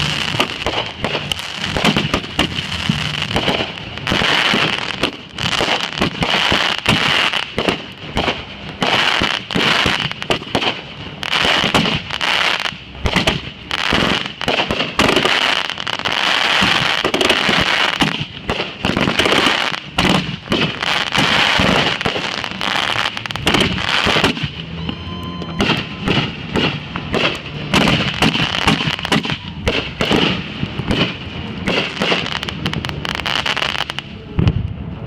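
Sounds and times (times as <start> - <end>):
fireworks bangs: 0.0 - 35.0
fireworks popping and crackling: 0.0 - 35.0.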